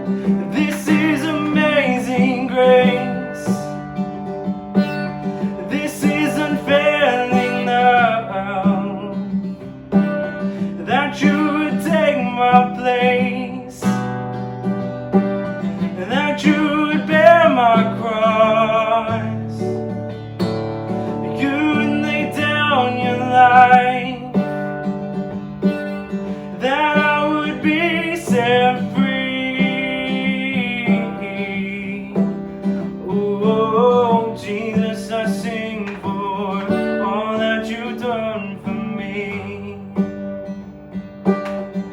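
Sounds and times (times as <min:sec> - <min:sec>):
person singing: 0:00.0 - 0:03.8, 0:05.4 - 0:09.3, 0:10.0 - 0:14.1, 0:15.8 - 0:19.8, 0:21.1 - 0:24.7, 0:26.4 - 0:40.1.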